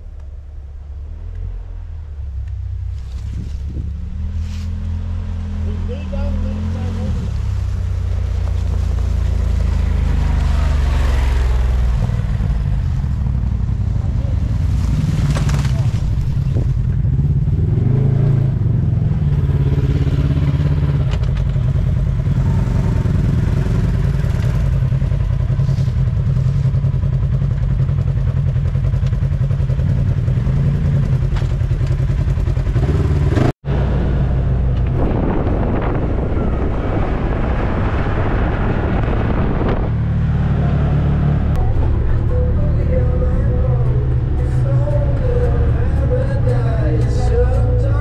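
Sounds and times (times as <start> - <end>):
vehicle engine droning: 0.0 - 48.0
rushing noise: 33.6 - 48.0.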